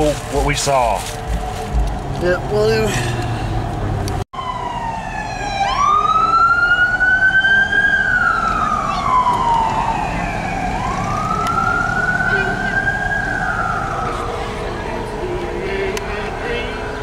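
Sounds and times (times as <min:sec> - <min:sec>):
emergency siren wailing: 0:04.3 - 0:17.0.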